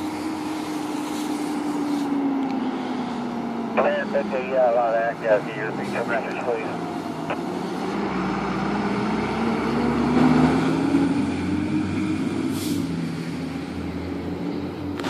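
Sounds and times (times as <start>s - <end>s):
heavy truck engine passing: 0.0s - 15.0s.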